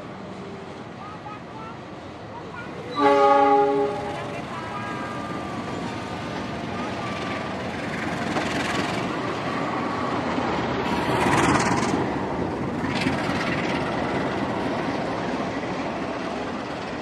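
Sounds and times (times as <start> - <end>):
train passing with rumble: 0.0 - 17.0.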